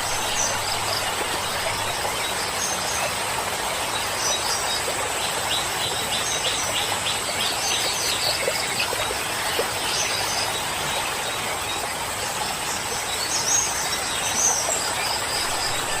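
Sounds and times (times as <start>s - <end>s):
river water rushing: 0.0s - 9.9s, 14.6s - 16.0s.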